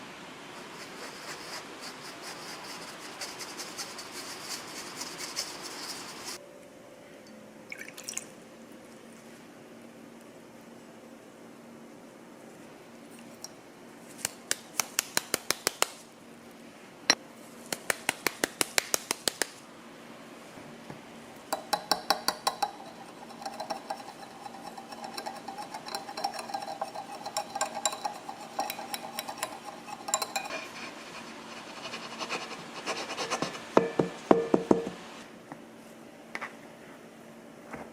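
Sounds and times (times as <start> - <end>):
whisk clinking against mixing bowl: 21.6 - 30.8, 33.2 - 35.0.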